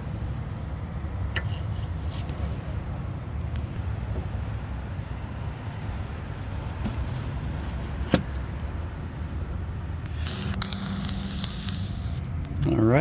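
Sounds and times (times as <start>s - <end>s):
car engine idling: 5.0s - 9.9s.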